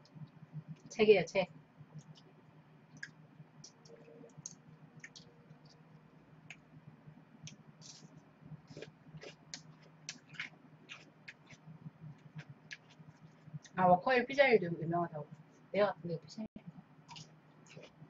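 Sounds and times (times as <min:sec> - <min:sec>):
person chewing crunchy vegetable: 0:07.5 - 0:13.8, 0:17.1 - 0:18.0.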